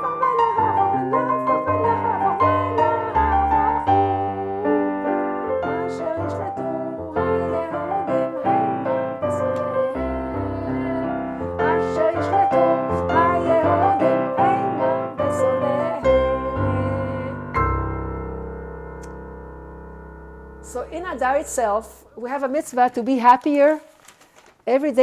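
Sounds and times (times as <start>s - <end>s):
piano-toned keyboard melody: 0.0s - 22.3s.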